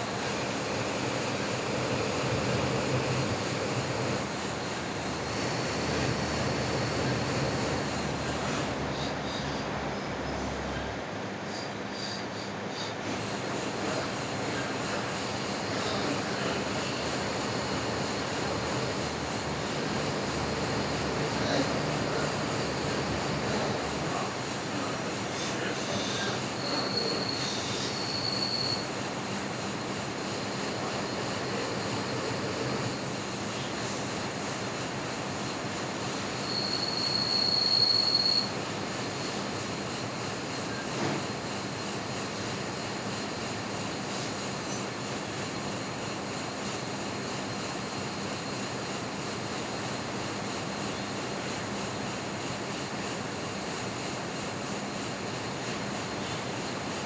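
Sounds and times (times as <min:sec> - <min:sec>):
metal lathe cutting: 0:00.0 - 0:10.0, 0:13.8 - 0:28.7.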